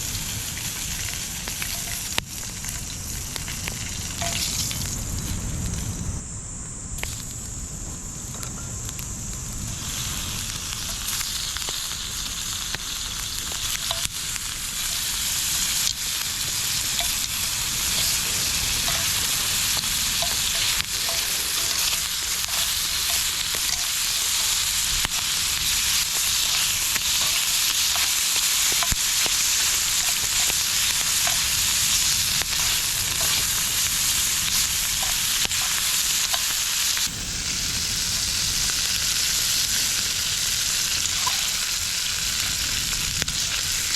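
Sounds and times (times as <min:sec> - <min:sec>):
food sizzling in a pan: 0:00.0 - 0:06.3, 0:06.9 - 0:43.9.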